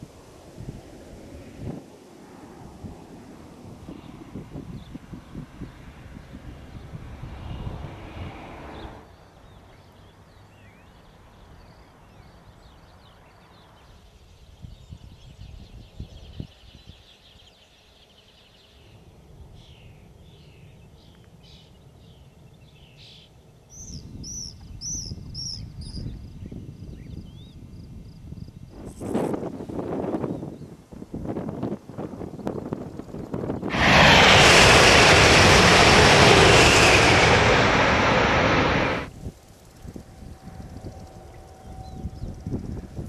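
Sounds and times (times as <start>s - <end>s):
wind on microphone: 0.0s - 9.0s, 24.0s - 43.0s.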